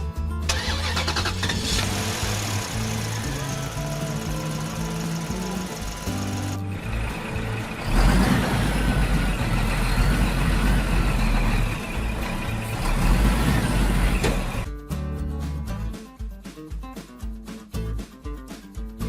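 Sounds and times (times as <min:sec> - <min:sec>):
background music: 0:00.0 - 0:19.0
heavy vehicle engine rumbling: 0:00.4 - 0:14.7.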